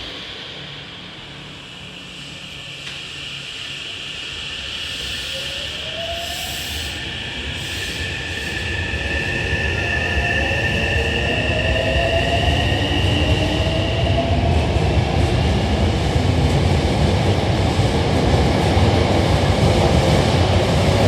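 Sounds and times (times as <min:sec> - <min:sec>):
train wheels rumbling on rails: 0:00.0 - 0:21.0
train traction motors whining: 0:00.6 - 0:10.7.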